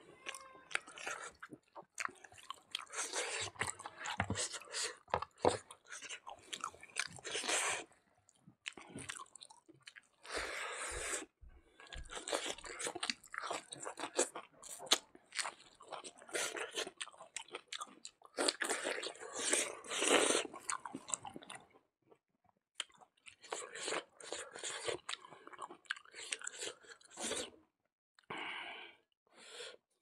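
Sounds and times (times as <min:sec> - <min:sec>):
man chewing and crunching: 0:00.2 - 0:21.8, 0:22.8 - 0:27.6.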